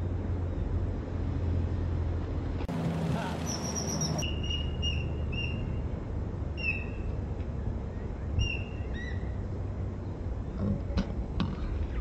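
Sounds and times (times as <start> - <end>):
bird call notes: 3.4 - 5.8.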